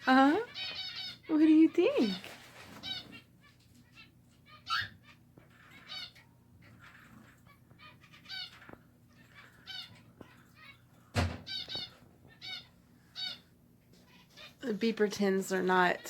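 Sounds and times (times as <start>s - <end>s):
finches chirping: 0.0s - 16.0s.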